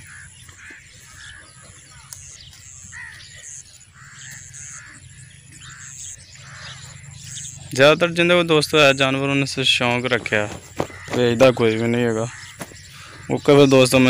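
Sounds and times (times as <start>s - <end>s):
birds calling: 0.0s - 14.0s
high bird chirps: 0.0s - 14.0s.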